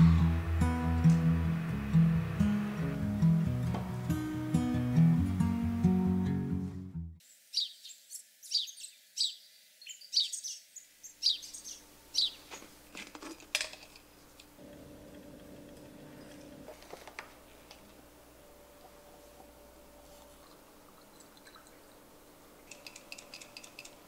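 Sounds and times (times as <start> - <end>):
small birds chirping: 7.4 - 12.8.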